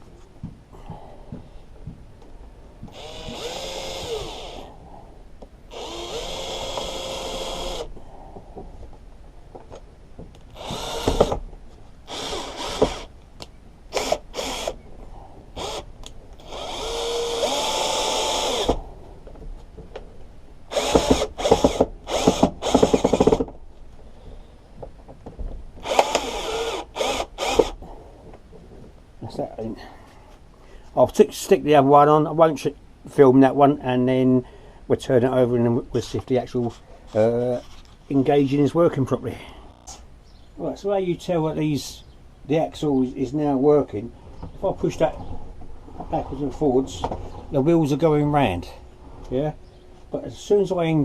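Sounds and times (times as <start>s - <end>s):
cordless driver running screws: 2.9s - 4.7s, 5.7s - 7.9s, 10.5s - 11.4s, 12.1s - 13.1s, 13.9s - 14.8s, 15.6s - 18.8s, 20.7s - 23.4s, 25.8s - 27.8s.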